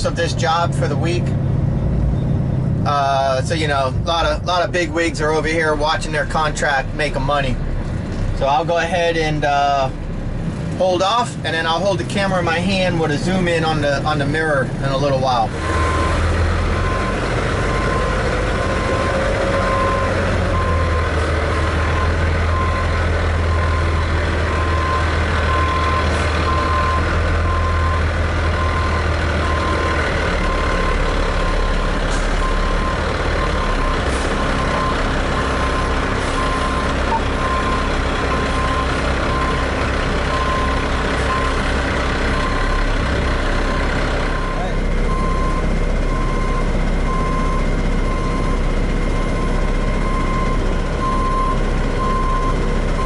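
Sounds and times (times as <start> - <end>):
heavy diesel engine running: 0.0 - 53.0
backup alarm beeping: 18.8 - 21.0, 24.6 - 28.0, 32.4 - 41.6, 44.4 - 48.6, 49.2 - 53.0.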